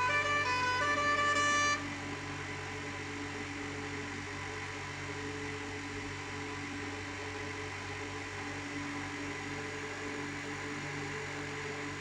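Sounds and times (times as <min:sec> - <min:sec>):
steady whine: 0:00.0 - 0:07.0
excavator engine hum: 0:00.0 - 0:12.0.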